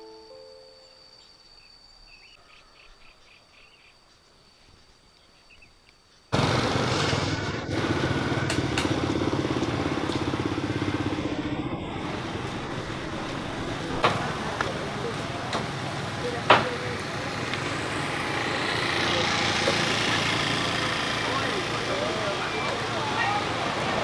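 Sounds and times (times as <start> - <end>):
faint insect chirps: 0.0 - 6.4
road noise: 6.4 - 24.0
vehicle engine running steadily: 6.4 - 24.0.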